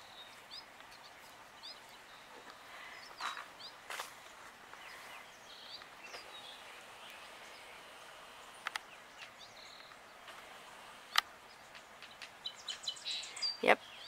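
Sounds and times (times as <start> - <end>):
bird chirps: 0.0 - 14.0
sharp clicks: 8.6 - 12.4.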